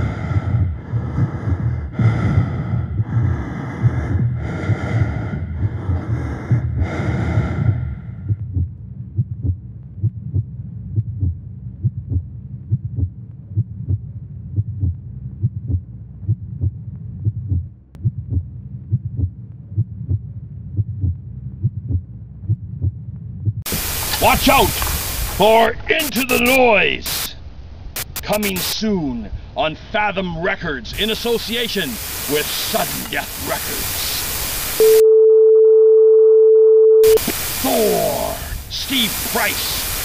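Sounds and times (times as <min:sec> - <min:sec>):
rasping breath-like bursts: 0:00.0 - 0:08.4
heartbeat-like pulse: 0:00.0 - 0:24.9.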